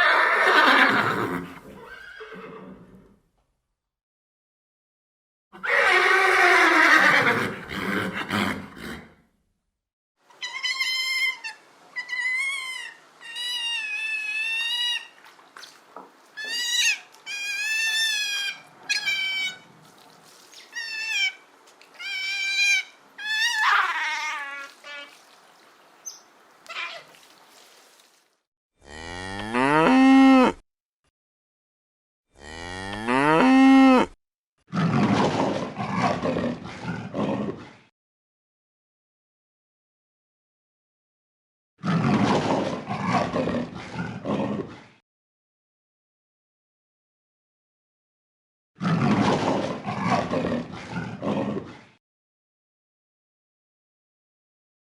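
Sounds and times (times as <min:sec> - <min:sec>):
high wavering animal calls: 0:10.3 - 0:15.2, 0:16.4 - 0:19.7, 0:20.5 - 0:25.4, 0:26.0 - 0:27.2
cow mooing: 0:28.8 - 0:30.6, 0:32.4 - 0:34.2.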